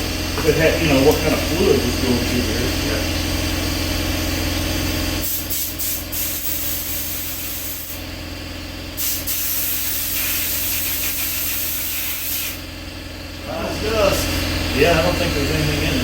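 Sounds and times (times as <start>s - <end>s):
steady low hum: 0.0s - 16.0s
compressed air hissing from blow gun: 5.2s - 8.0s, 9.0s - 12.7s.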